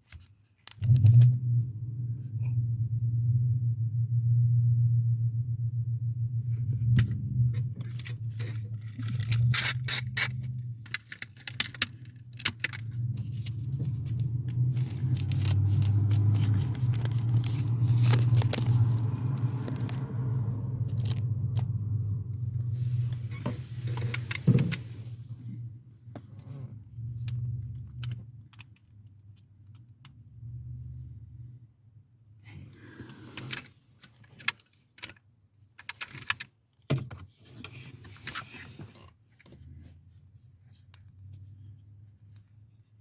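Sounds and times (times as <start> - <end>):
plastic parts and tools rattling: 0.0 - 1.4, 6.8 - 21.7, 33.4 - 39.6
steady low hum: 0.8 - 11.3.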